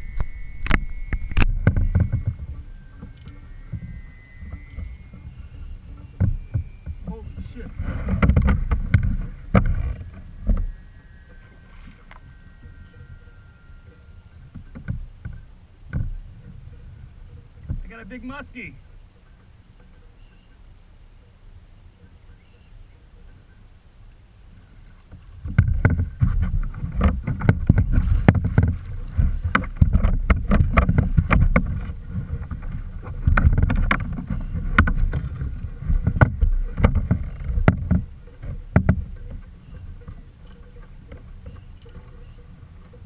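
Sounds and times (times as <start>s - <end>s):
low rumbling and handling noise: 0.0s - 43.0s
knocks and bumps on kayak: 6.2s - 10.7s, 17.6s - 17.9s, 25.4s - 42.2s.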